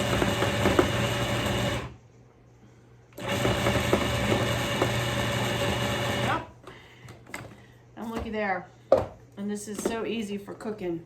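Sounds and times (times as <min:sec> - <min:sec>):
food processor motor running: 0:00.0 - 0:02.0, 0:03.2 - 0:06.5.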